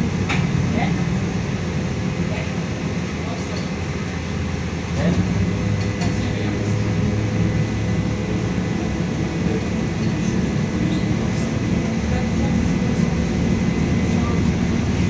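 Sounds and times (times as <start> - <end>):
trolleybus motor hum: 0.0 - 15.0
faint high whine: 14.1 - 15.0.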